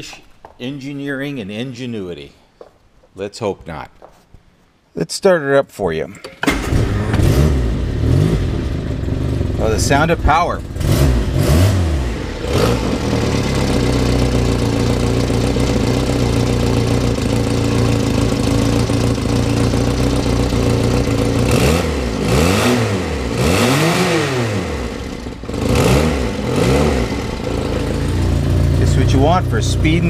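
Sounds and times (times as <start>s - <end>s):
car engine idling and revving: 6.5s - 30.0s.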